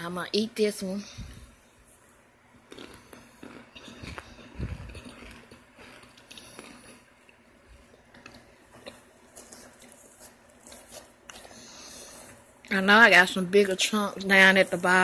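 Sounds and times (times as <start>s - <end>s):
crunchy chewing: 2.7s - 12.7s.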